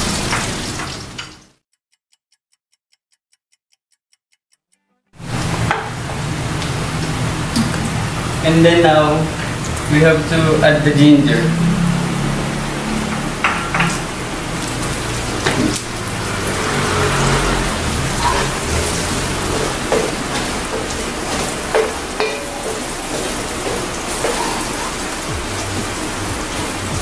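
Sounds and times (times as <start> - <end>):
aromatics sizzling in hot oil: 0.0 - 1.6, 5.2 - 27.0
wooden spatula scraping a wok: 14.6 - 26.0.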